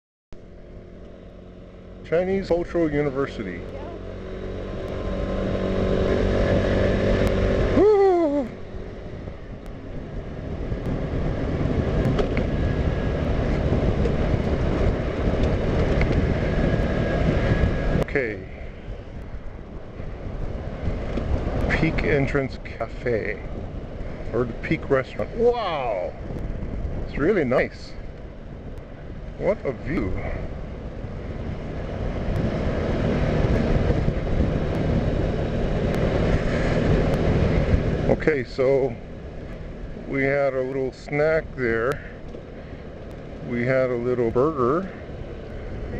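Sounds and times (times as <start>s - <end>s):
road noise: 0.3s - 45.9s
scooter engine running: 0.4s - 22.3s
motor scooter engine rumble: 0.4s - 45.9s
wind buffeting microphone: 3.6s - 45.9s.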